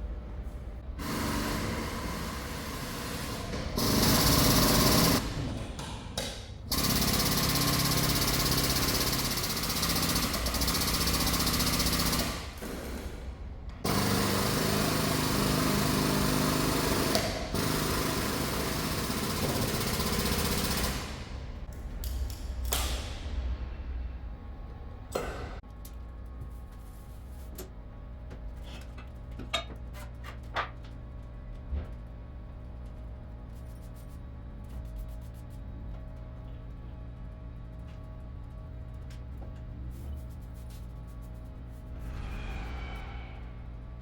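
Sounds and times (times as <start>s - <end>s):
power tool hammering: 1.0s - 5.2s, 6.7s - 13.0s, 13.9s - 21.2s.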